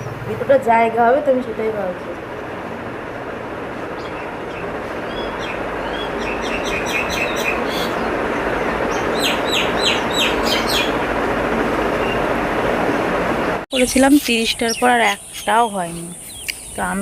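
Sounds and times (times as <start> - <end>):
outdoor background rush: 0.0 - 17.0
small birds chirping: 4.0 - 11.1, 13.7 - 17.0.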